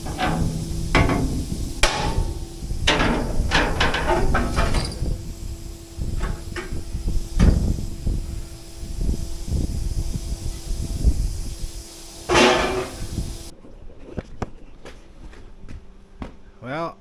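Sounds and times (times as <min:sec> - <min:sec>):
heavy steel banging and clanking: 0:00.0 - 0:13.5
steady low hum: 0:00.0 - 0:13.5.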